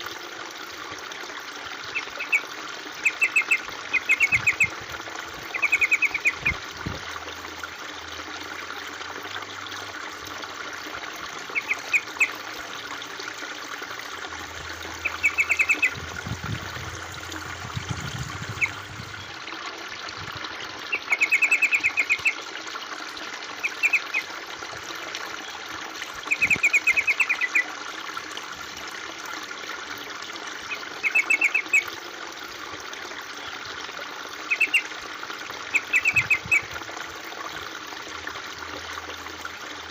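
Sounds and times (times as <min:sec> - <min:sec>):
water trickling: 0:00.0 - 0:39.9
bird chirping: 0:15.0 - 0:16.0, 0:31.0 - 0:31.8.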